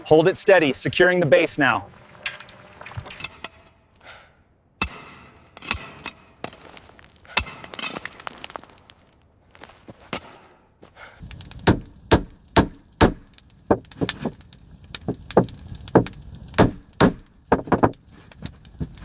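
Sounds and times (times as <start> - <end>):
knocks striking wood: 11.6 - 14.4, 15.0 - 18.0.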